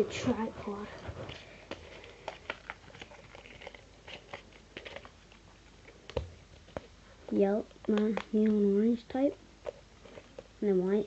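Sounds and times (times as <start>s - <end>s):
plastic clicks and taps: 7.8s - 8.6s.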